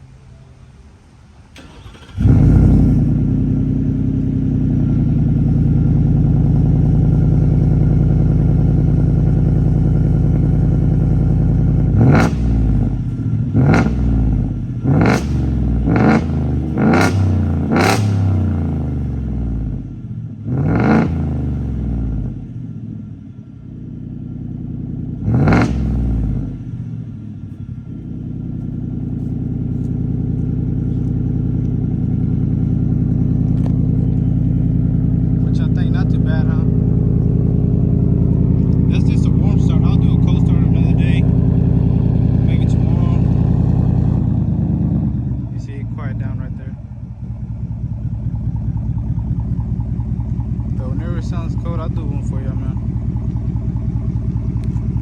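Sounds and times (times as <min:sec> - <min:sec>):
truck engine starting: 0:00.0 - 0:23.7, 0:24.6 - 0:55.0
engine idling: 0:00.0 - 0:55.0
engine revving: 0:01.6 - 0:23.0, 0:23.8 - 0:55.0.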